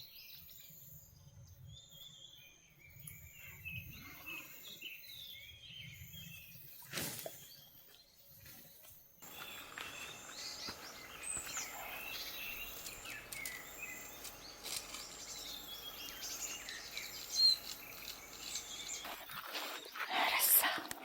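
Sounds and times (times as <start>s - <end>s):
outdoor hiss: 9.2s - 19.2s
birds chirping: 9.2s - 21.0s.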